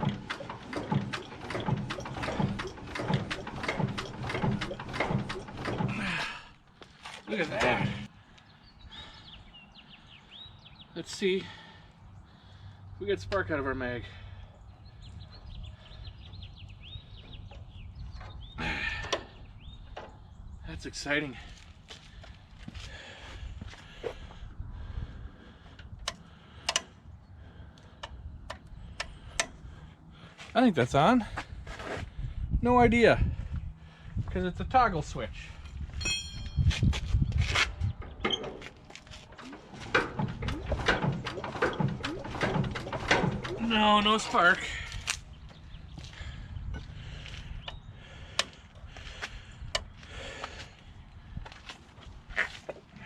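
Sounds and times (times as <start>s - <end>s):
birds chirping and whistling: 14.2s - 20.6s, 40.5s - 49.6s.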